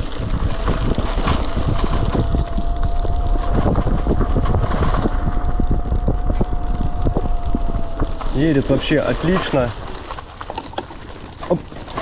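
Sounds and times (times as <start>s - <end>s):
electric motor whine: 0.0s - 10.0s
wind buffeting microphone: 0.0s - 12.0s
bike knocks and rattles: 9.2s - 12.0s.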